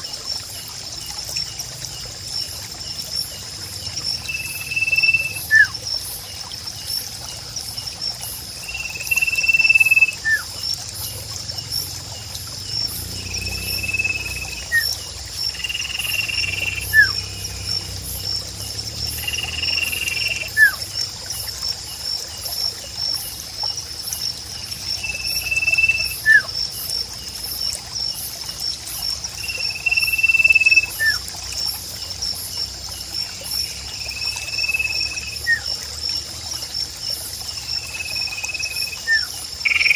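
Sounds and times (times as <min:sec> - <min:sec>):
insects trilling: 0:00.0 - 0:39.9
water trickling: 0:00.0 - 0:39.9
bird whistling: 0:04.8 - 0:05.7, 0:25.6 - 0:26.5.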